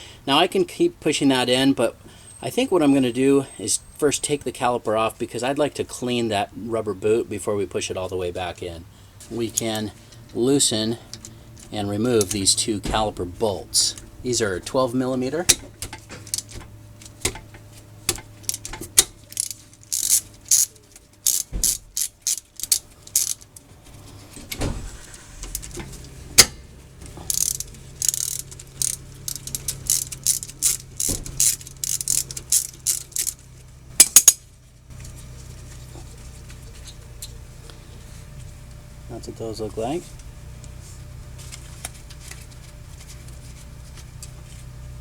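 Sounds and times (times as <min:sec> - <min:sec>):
sharp metallic clicks: 0:15.4 - 0:23.7, 0:24.5 - 0:34.4
ratchet wrench clicking: 0:15.9 - 0:17.4, 0:18.1 - 0:23.6, 0:26.4 - 0:33.4, 0:34.0 - 0:34.4.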